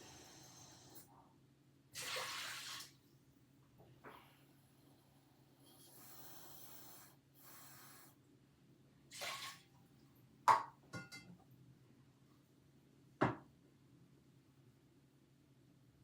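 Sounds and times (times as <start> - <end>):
tap water running: 2.0 - 3.0, 9.1 - 9.7
cookware clinking: 10.5 - 11.4.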